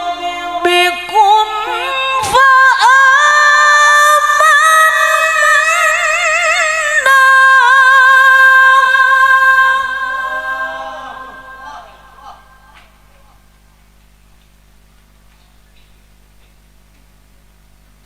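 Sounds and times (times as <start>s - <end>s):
woman reciting melodically: 0.0s - 13.5s.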